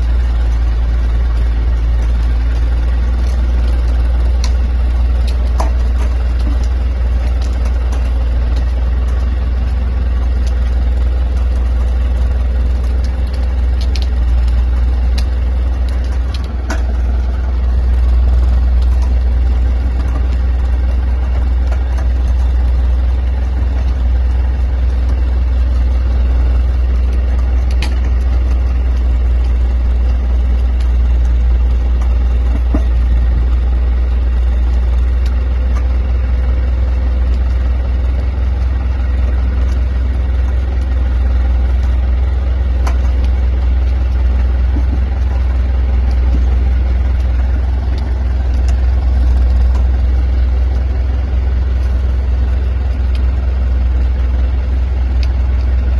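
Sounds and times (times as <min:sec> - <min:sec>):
machine low drone: 0:00.0 - 0:55.9.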